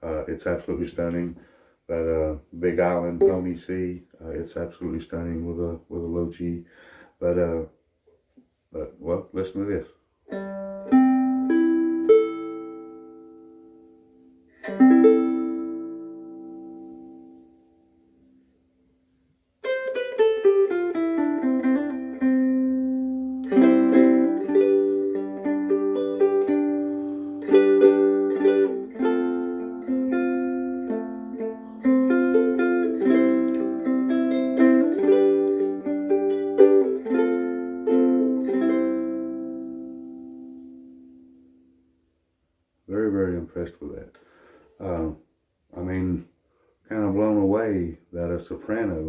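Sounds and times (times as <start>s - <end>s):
ukulele playing: 2.7s - 3.7s, 10.3s - 18.4s, 19.6s - 41.8s.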